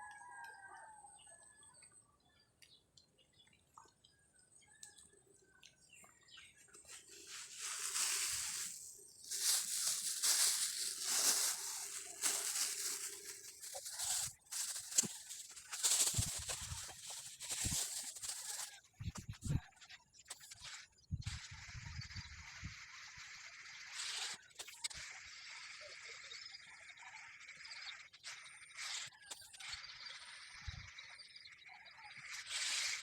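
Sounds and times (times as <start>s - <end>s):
rustling and crackling: 6.6s - 19.6s.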